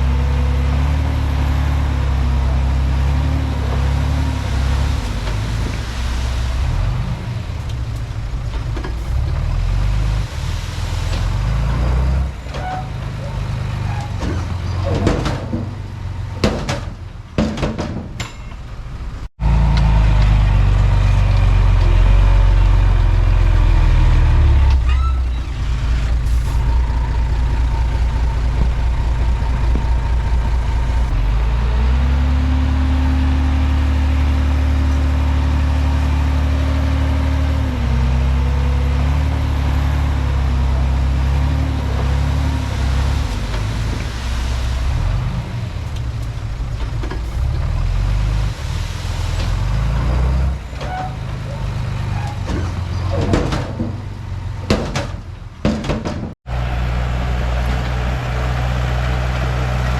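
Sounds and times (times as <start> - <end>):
bulldozer diesel engine running: 0.0 - 17.4, 18.0 - 59.9.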